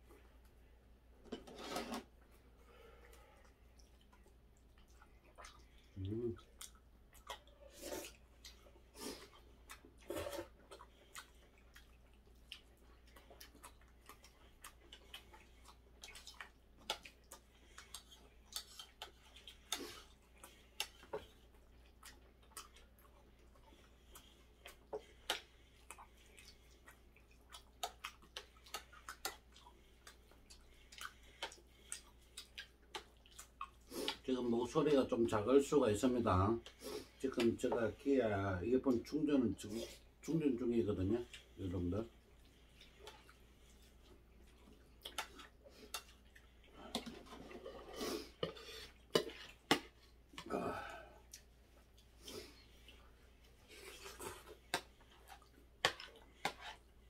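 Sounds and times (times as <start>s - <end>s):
man chewing crispy food: 2.2s - 34.9s, 41.1s - 57.0s
mouth clicks and lip smacks: 3.4s - 8.6s, 10.6s - 34.3s, 44.6s - 46.6s.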